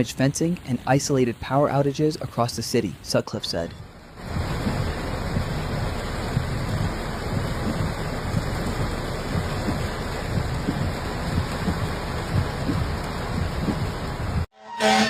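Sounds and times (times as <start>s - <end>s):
heavy rain pouring: 0.0s - 14.5s
low uneven thunder rumble: 3.8s - 14.5s.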